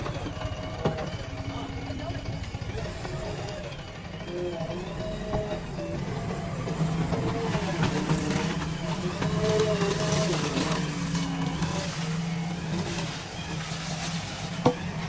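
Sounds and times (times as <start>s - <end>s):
diesel engine running: 0.0s - 15.0s
voices: 0.0s - 15.0s.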